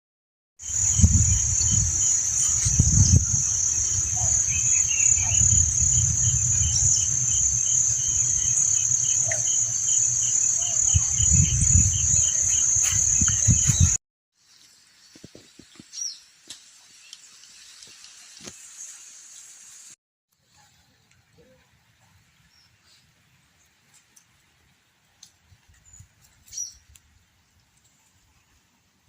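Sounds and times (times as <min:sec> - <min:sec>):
insects buzzing: 0:00.6 - 0:15.8
low rumble: 0:00.7 - 0:12.4.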